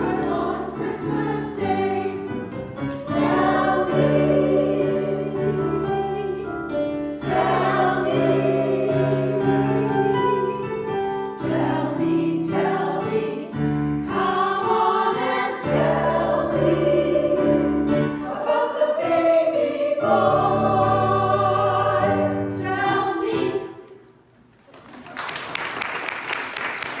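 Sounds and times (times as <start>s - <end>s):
piano accompaniment: 0.0s - 23.9s
choir singing in harmony: 0.0s - 24.0s
audience applauding: 24.9s - 27.0s.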